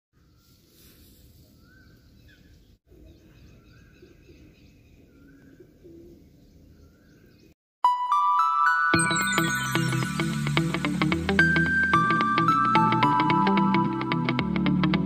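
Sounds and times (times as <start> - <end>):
birds chirping: 1.4 - 7.6
loud bright chime: 7.9 - 11.9.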